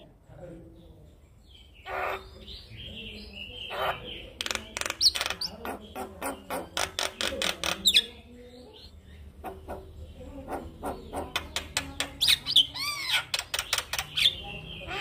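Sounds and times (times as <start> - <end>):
bird singing harsh chattering: 0.0 - 15.0
sharp clicking bird calls: 3.6 - 8.1, 8.8 - 14.4.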